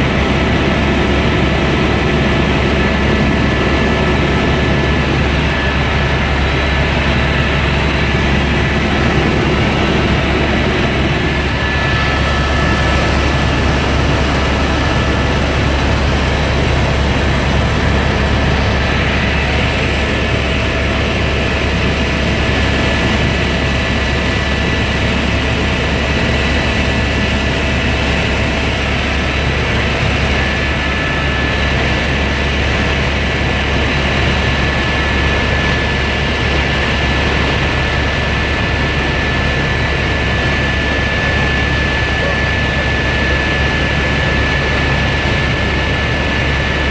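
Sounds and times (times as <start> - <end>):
high whine: 0.0 - 34.3
helicopter engine and rotor drone: 0.0 - 46.9.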